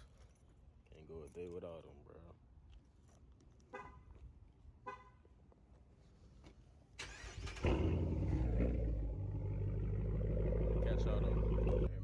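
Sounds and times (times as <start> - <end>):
loud engine idling: 9.0 - 12.0.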